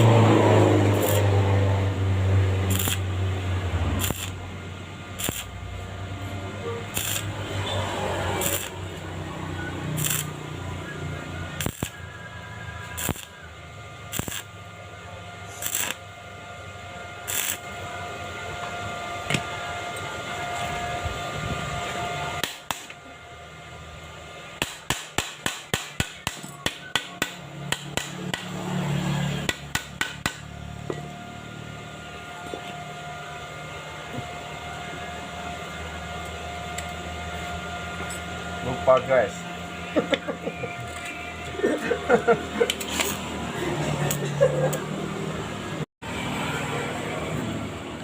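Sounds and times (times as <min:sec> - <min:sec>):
steady hum: 0:00.0 - 0:48.0
hammer striking metal: 0:24.6 - 0:28.6, 0:29.4 - 0:31.0.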